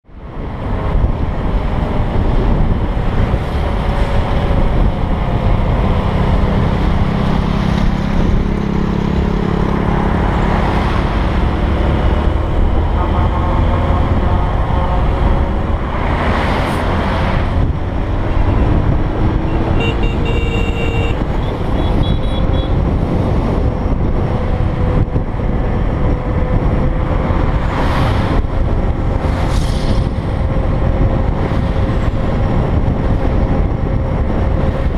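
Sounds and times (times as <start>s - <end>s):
wind and road noise: 0.0s - 34.9s
short horn beeps: 19.8s - 21.2s.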